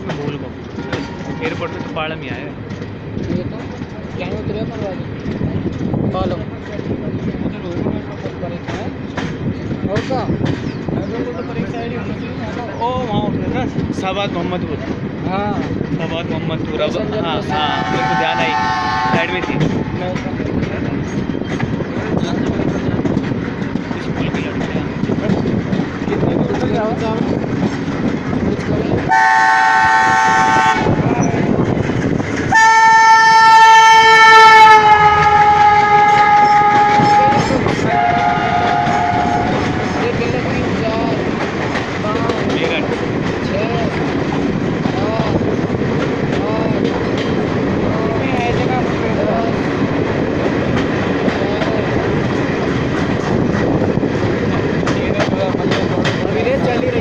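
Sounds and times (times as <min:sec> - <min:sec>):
train rumbling on rails: 0:00.0 - 0:57.0
train horn blasts: 0:17.7 - 0:19.4, 0:29.1 - 0:31.0, 0:32.5 - 0:39.9
wheels clicking over rail joints: 0:31.2 - 0:57.0.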